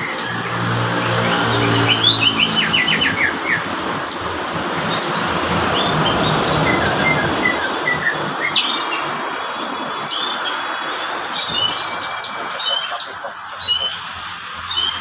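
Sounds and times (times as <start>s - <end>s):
steady background noise: 0.0s - 15.0s
lark singing chirps and whistles: 4.9s - 15.0s.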